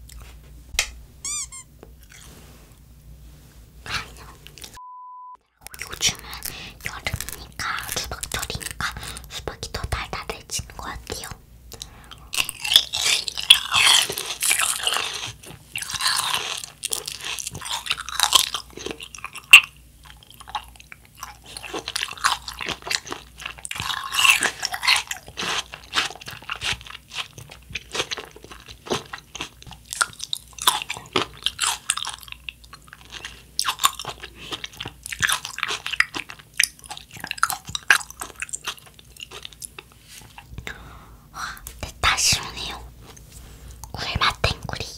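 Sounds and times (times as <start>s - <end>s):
close chewing: 5.6s - 9.5s, 11.7s - 40.6s.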